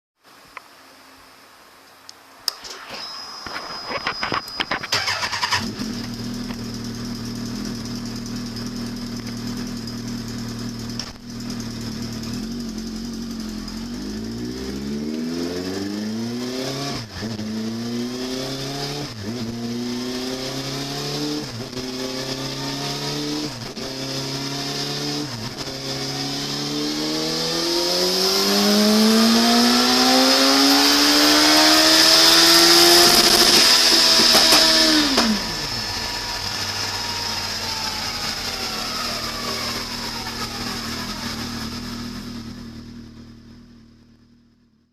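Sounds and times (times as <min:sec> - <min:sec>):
steady high whine: 0:00.3 - 0:16.4, 0:32.7 - 0:43.4
vehicle engine revving: 0:04.9 - 0:44.5.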